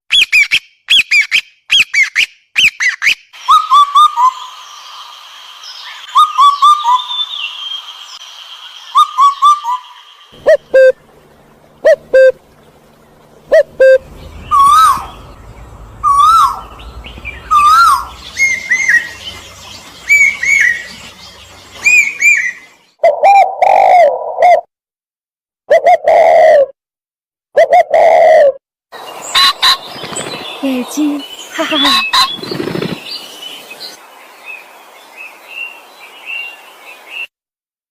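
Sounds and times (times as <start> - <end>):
whistled bird calls: 0.1 - 4.5, 5.7 - 8.2, 8.8 - 23.4, 29.2 - 34.0.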